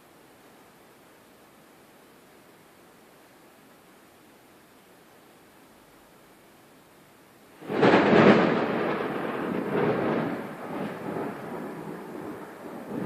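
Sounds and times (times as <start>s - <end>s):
thunder crack and rumble: 7.6s - 13.0s.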